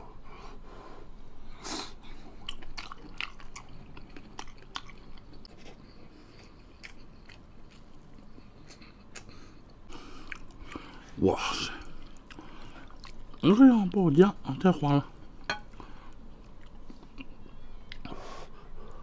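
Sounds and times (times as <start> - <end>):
wet chewing smacks and clicks: 2.4 - 9.4, 10.2 - 11.1, 11.7 - 13.5.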